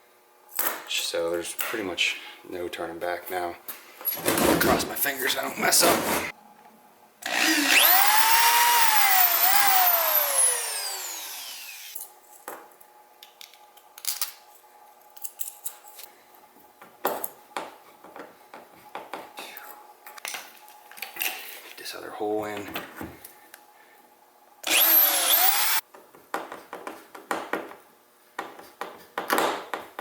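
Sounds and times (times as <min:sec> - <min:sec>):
power drill whining: 0:07.2 - 0:12.0, 0:24.6 - 0:25.8.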